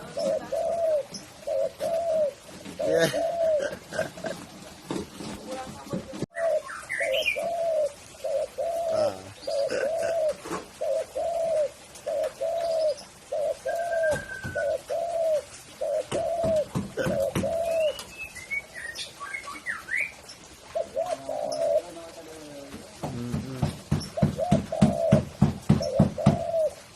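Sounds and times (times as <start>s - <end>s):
dove cooing: 0.0s - 18.1s, 20.5s - 26.9s
small birds chirping: 0.0s - 26.9s.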